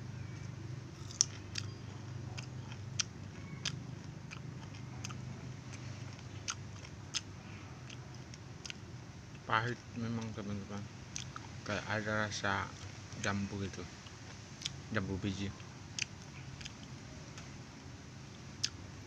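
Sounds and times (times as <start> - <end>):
steady low hum: 0.0 - 19.0
person biting and chewing fruit: 0.9 - 11.6, 15.5 - 17.6, 18.6 - 18.8.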